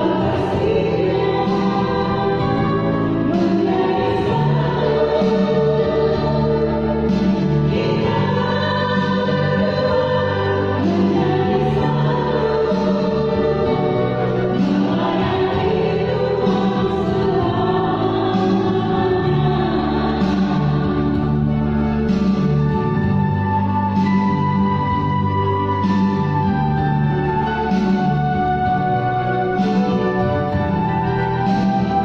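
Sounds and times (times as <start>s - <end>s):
choir singing sustained notes: 0.0s - 23.6s.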